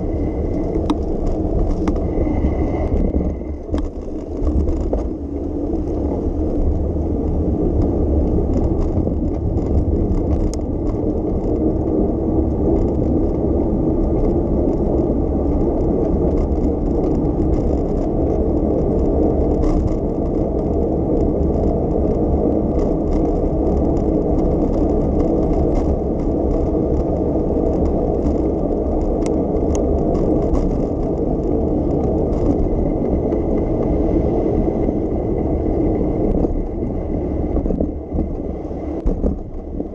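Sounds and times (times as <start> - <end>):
bicycle tyres rolling on road: 0.0 - 39.9
wind on microphone: 0.0 - 39.9
faint clicks and rattles: 0.2 - 34.2.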